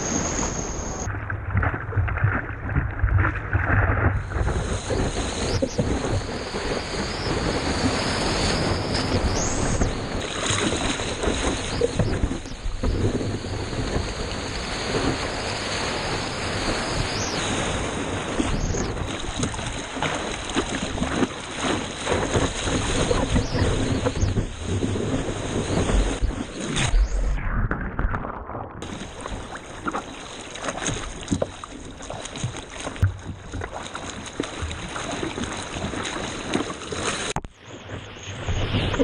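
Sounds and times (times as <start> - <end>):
wind buffeting microphone: 0.0 - 27.2
seawater splashing and rushing: 0.0 - 39.0.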